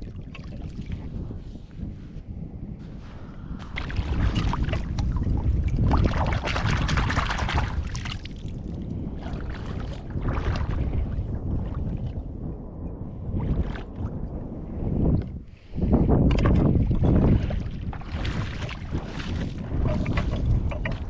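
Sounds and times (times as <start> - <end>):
wind buffeting microphone: 0.0 - 21.0
waves washing on shore: 3.3 - 11.1.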